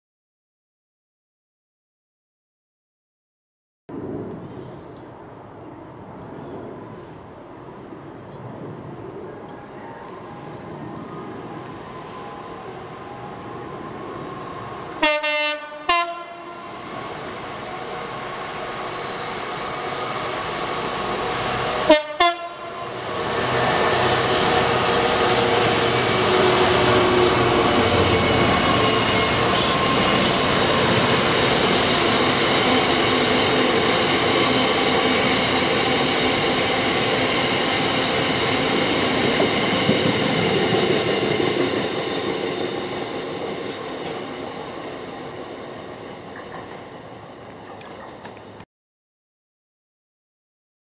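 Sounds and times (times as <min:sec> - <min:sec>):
freight train rumbling and clattering: 0:21.2 - 0:47.0.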